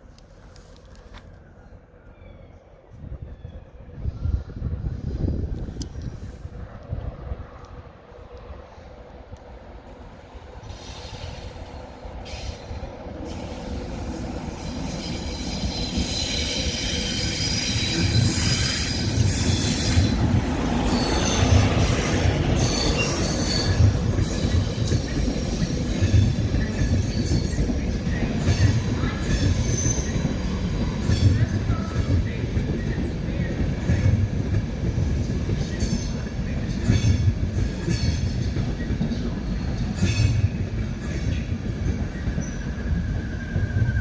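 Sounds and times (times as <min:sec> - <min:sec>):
train running: 0:02.8 - 0:44.0
train wheel squeal: 0:10.1 - 0:34.2, 0:35.5 - 0:44.0.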